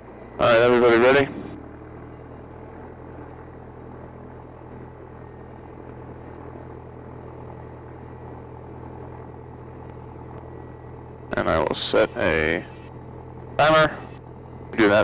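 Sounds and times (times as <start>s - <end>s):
aircraft engine and propeller: 0.0s - 15.0s.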